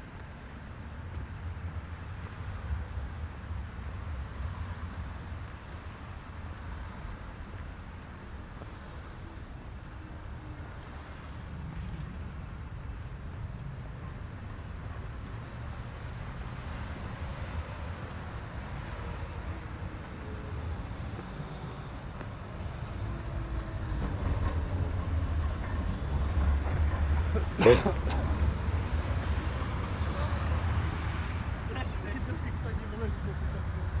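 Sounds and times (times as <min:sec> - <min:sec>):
passing vehicles rumbling: 0:08.7 - 0:34.0.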